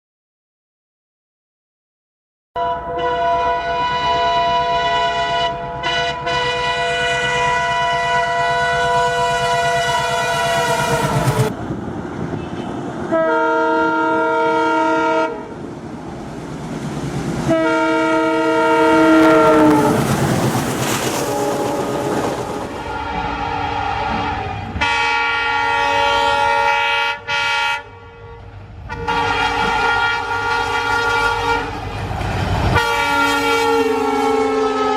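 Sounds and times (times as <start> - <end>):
locomotive horn blasts: 2.6 - 11.5, 12.4 - 15.6, 17.5 - 20.0, 22.8 - 31.9, 32.7 - 34.9
moving train rumble and clatter: 3.4 - 27.6, 28.2 - 34.9.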